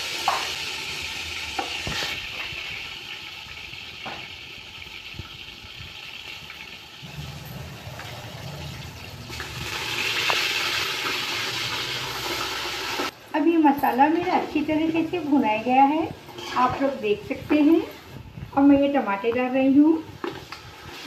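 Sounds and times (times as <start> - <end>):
spices sizzling in hot oil: 0.0 - 13.2.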